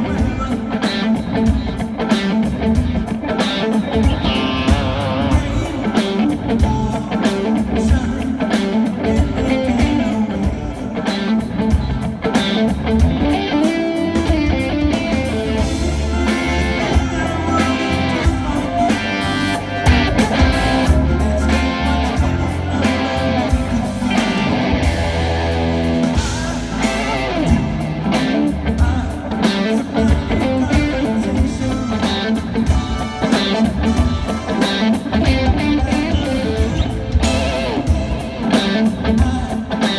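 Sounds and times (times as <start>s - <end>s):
electric guitar: 0.0s - 39.9s
live rock band: 0.0s - 39.9s
drum hits: 19.9s - 29.3s.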